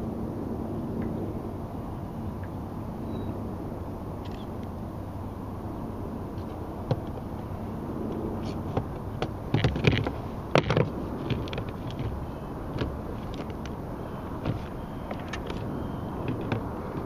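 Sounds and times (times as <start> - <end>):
low background rumble: 0.0 - 17.0
sharp knocks and clatters: 8.7 - 12.2.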